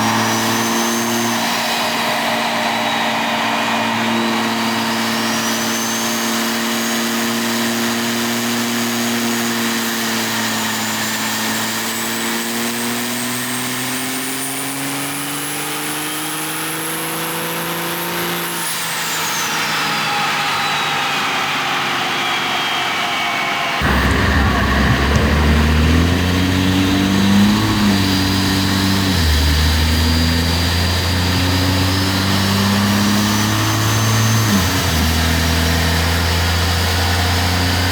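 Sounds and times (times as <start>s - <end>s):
high turbo whistle: 0.0s - 37.9s
diesel engine under load: 23.8s - 37.9s.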